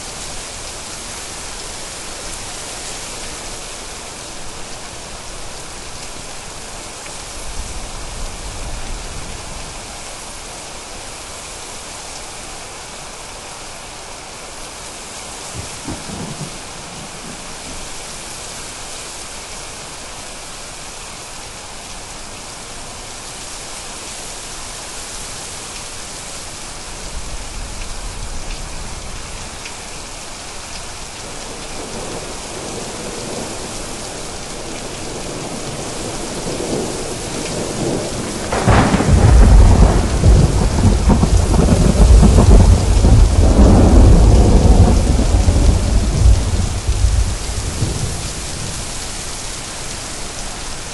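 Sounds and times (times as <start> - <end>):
steady rain: 0.0 - 50.9
thunder rumble: 34.6 - 49.1
loud thunderclap: 37.6 - 48.8.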